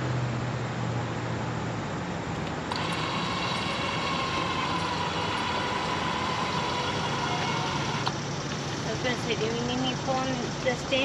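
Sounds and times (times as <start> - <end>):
power awning motor whining: 2.5 - 11.0.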